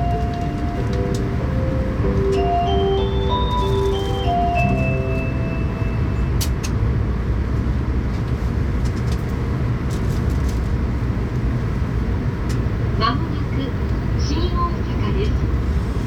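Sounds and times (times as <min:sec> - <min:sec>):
onboard chime: 0:00.0 - 0:06.5
train rumbling from inside: 0:00.0 - 0:16.0.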